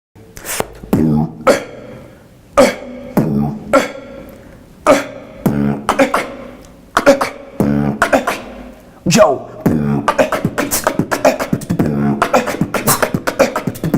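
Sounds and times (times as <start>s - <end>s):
beatboxing percussive mouth hits: 0.2s - 2.0s, 2.6s - 13.9s
deep held bass tones: 0.8s - 13.9s.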